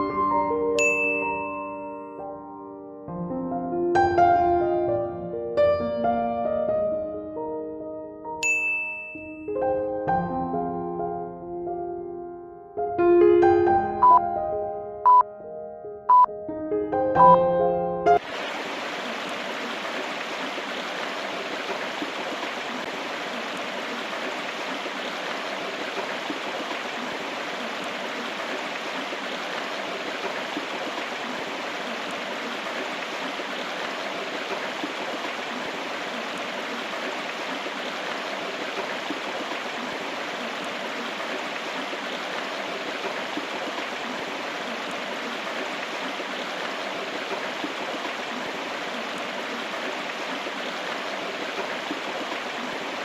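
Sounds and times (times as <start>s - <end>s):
flowing river rushing: 18.2s - 53.0s.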